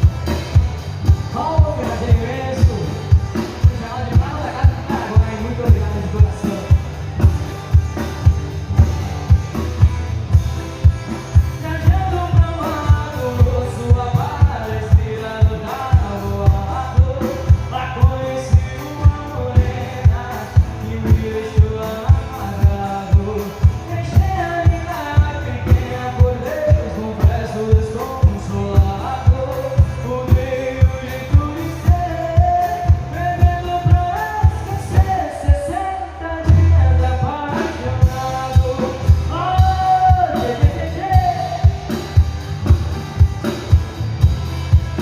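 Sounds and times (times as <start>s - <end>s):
person singing over a band: 11.5s - 42.2s.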